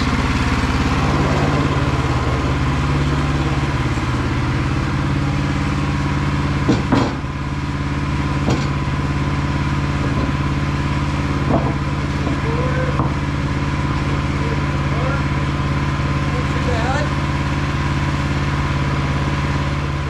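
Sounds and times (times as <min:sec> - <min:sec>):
sawmill engine running: 0:00.0 - 0:20.0
sharp knocks: 0:06.6 - 0:07.3, 0:08.4 - 0:08.8, 0:11.4 - 0:13.2.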